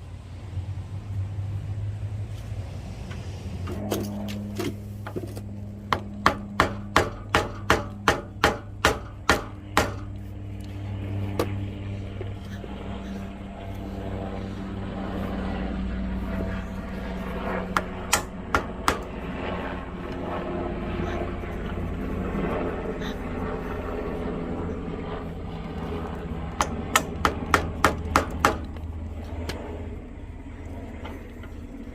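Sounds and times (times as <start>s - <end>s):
steady low hum: 0.0s - 31.9s
sharp hammer taps: 5.9s - 10.2s.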